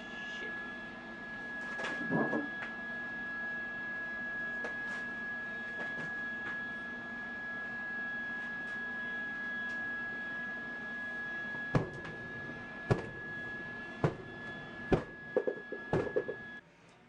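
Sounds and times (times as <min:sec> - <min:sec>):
high-pitched electrical whine: 0:00.0 - 0:16.6
low hum: 0:08.9 - 0:16.6.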